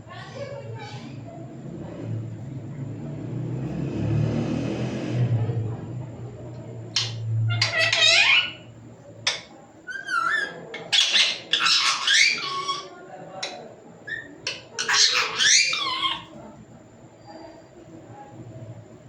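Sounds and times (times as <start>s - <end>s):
parrot squawking speech-like words: 7.0s - 8.6s, 9.9s - 16.3s.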